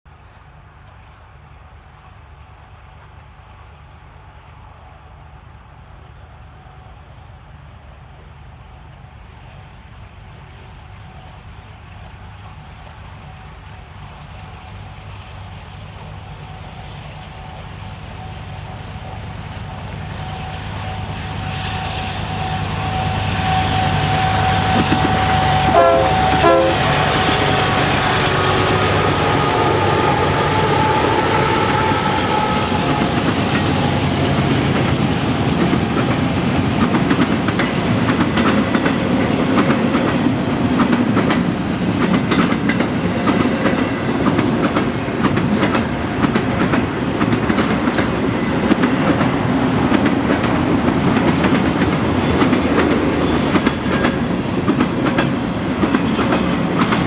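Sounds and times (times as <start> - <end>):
diesel locomotives working: 0.1 - 57.0
clickety-clack of train wheels: 16.0 - 57.0
train horn toots: 16.4 - 34.2.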